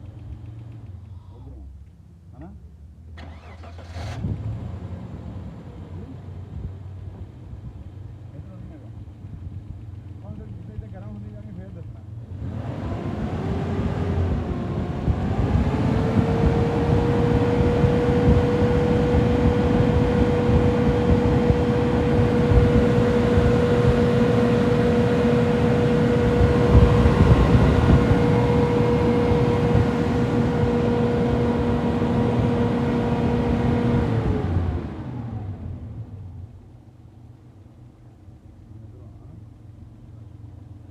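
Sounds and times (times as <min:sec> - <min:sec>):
engine revving: 0:12.3 - 0:36.0
steady pitched whine: 0:17.0 - 0:34.0.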